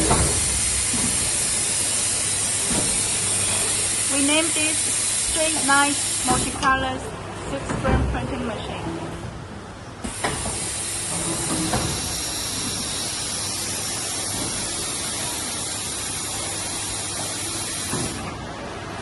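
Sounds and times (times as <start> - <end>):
rushing air hiss: 10.0 - 18.2
machine running: 10.0 - 18.4.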